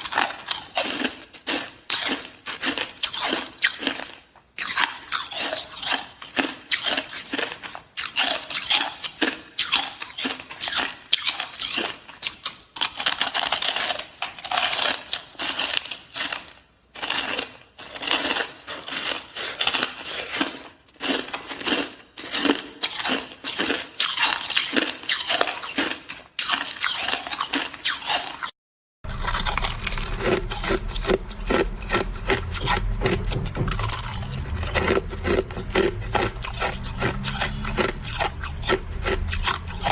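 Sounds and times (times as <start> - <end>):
crunching and chewing ice: 0.0 - 39.9
low hum: 29.0 - 39.9.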